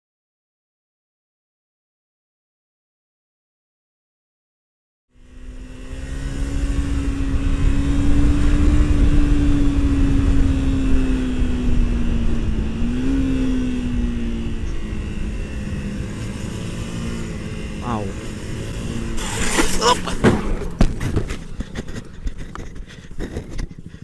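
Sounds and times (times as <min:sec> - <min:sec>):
vehicle engine running: 0:05.1 - 0:24.0
wind and road noise rumble: 0:05.1 - 0:24.0.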